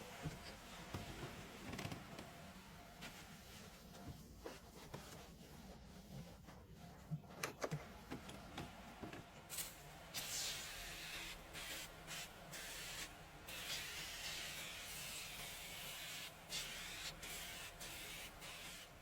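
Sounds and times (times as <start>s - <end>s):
spray hissing: 9.6s - 18.9s.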